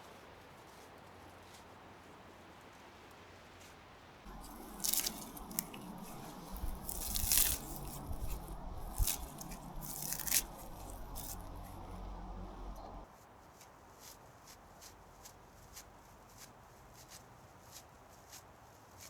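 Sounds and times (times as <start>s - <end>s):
dry twigs and leaves crunching: 4.3s - 13.0s.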